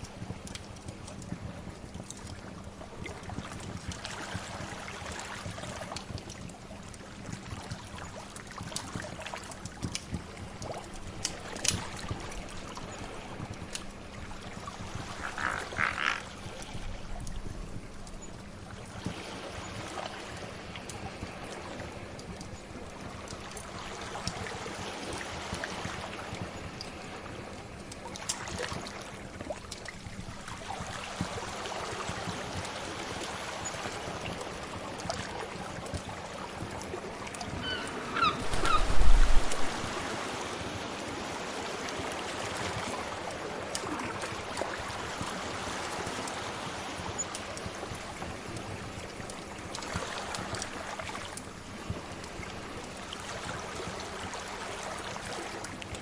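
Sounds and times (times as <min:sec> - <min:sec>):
sea waves: 0:02.6 - 0:56.0
wood fire crackling: 0:38.4 - 0:39.9.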